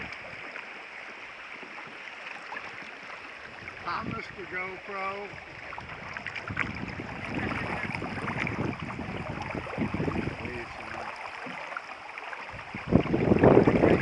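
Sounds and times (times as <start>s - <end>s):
wind on microphone: 0.0s - 0.5s, 3.4s - 11.3s, 12.4s - 14.0s
water splashing: 0.0s - 14.0s.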